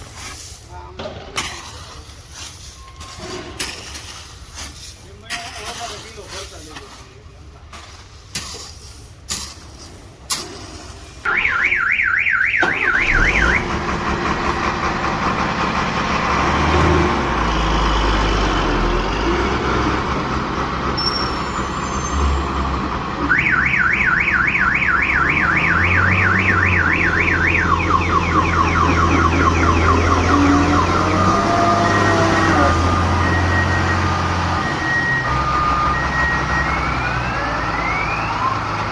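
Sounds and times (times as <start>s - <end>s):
low engine rumble: 12.7s - 38.9s
warbling electronic alarm: 23.3s - 32.0s.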